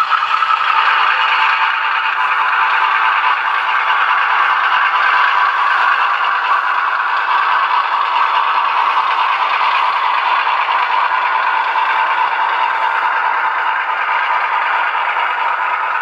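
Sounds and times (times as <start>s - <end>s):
model locomotive rattling on track: 0.0s - 16.0s.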